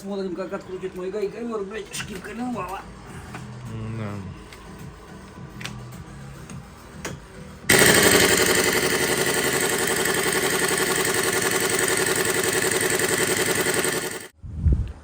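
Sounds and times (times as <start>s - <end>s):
impact wrench rattling: 7.7s - 14.3s.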